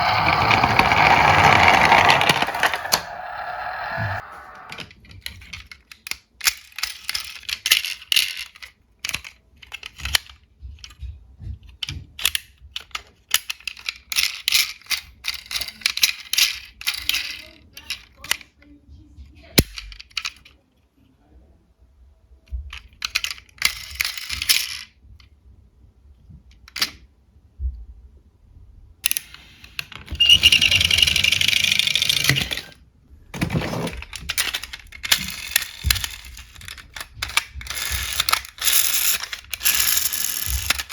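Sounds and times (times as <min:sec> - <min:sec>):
toy cars clinking and rattling: 0:00.0 - 0:11.0, 0:11.6 - 0:18.6, 0:19.5 - 0:20.6, 0:22.7 - 0:25.0, 0:29.0 - 0:32.8, 0:33.4 - 0:40.9.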